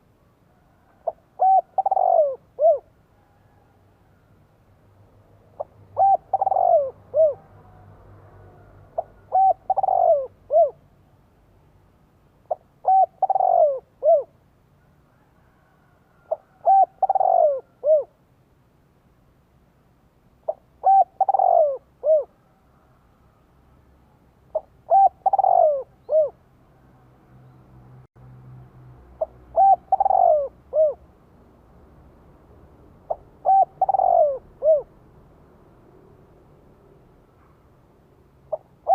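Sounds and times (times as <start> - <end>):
dove cooing: 0.8 - 3.7, 5.6 - 7.8, 8.5 - 10.8, 12.5 - 14.4, 15.5 - 18.2, 20.4 - 22.6, 24.5 - 26.4, 29.2 - 31.1, 33.1 - 34.9, 38.5 - 38.9.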